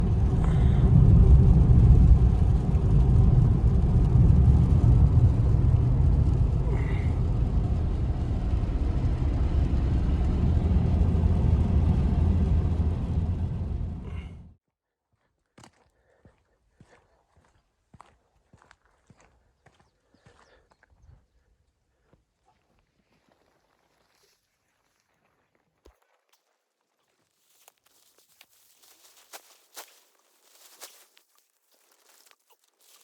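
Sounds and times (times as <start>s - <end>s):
low rumbling noise: 0.0s - 14.6s.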